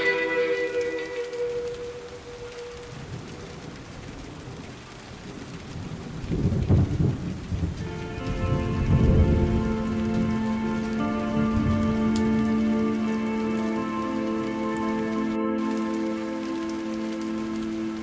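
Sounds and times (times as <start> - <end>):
music: 0.0 - 2.8, 7.8 - 18.0
steady rain: 0.0 - 18.0
thunder rumbling: 0.0 - 18.0.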